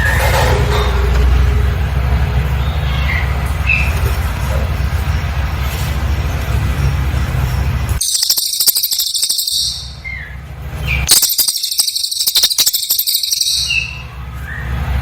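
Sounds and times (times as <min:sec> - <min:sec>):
bird rapid chattering: 0:08.0 - 0:10.3, 0:10.9 - 0:14.0.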